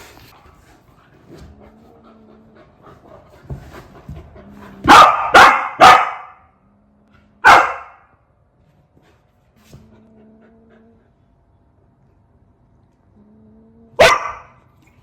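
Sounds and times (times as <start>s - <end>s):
dog barking loudly: 4.8s - 6.4s, 7.4s - 8.1s, 14.0s - 14.6s.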